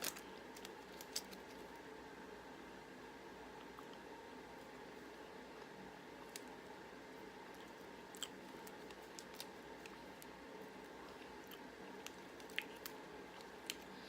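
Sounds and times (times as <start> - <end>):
low room hum: 0.0 - 14.0
chewing: 7.5 - 10.0, 11.0 - 14.0.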